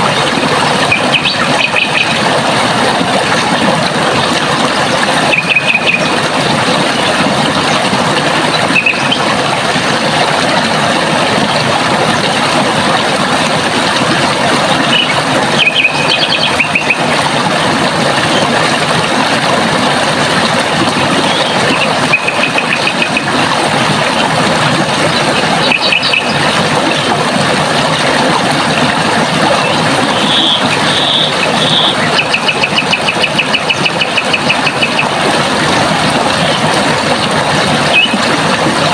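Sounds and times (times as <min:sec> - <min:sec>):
running water: 0:00.0 - 0:38.9
bird trilling: 0:05.3 - 0:06.1, 0:08.7 - 0:09.2, 0:14.9 - 0:17.0, 0:37.9 - 0:38.2.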